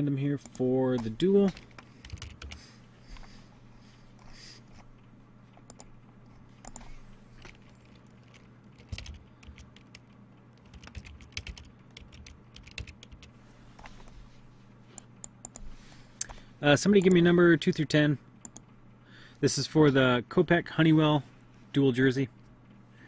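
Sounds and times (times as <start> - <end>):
low steady hum: 0.0 - 23.0
computer keyboard typing: 1.4 - 2.6, 5.7 - 5.9, 6.6 - 13.3, 16.9 - 17.3.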